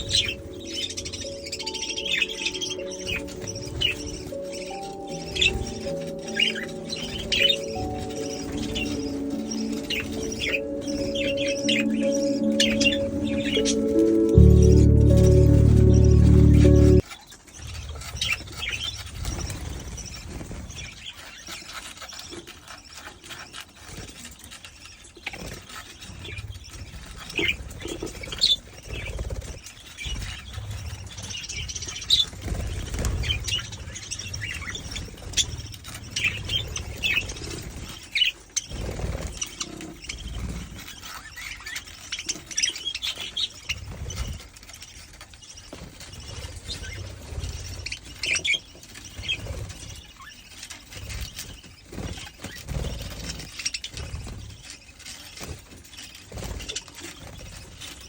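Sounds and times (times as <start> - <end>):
budgies chirping and chattering: 0.0 - 58.0.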